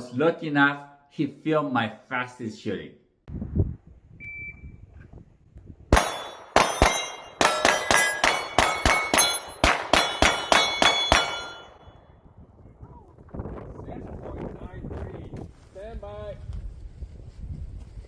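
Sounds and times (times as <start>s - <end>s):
shot timer beep: 4.2s - 4.7s
pistol shots: 5.9s - 11.8s
steel targets clanging: 6.0s - 11.8s.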